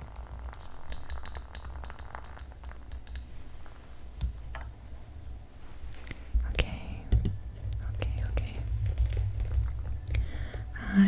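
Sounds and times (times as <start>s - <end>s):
small objects clicking and tapping: 0.0s - 3.3s
low steady hum: 0.0s - 11.0s.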